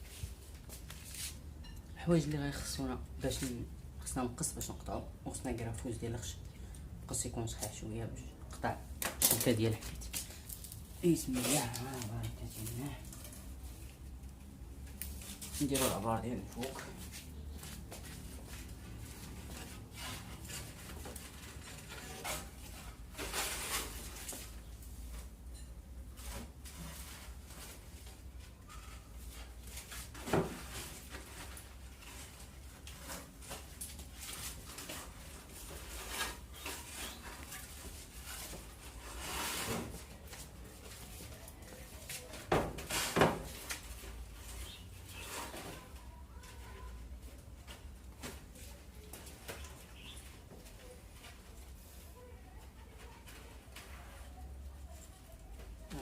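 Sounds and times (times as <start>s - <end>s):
wire mesh rustling and scraping: 9.0s - 47.0s.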